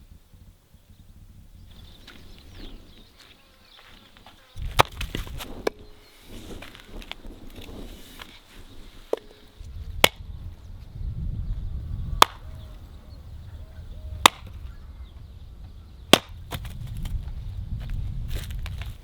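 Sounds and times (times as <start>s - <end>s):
wood being chopped: 4.7s - 5.8s, 10.0s - 10.2s, 12.2s - 12.5s, 14.2s - 14.6s, 16.1s - 17.2s.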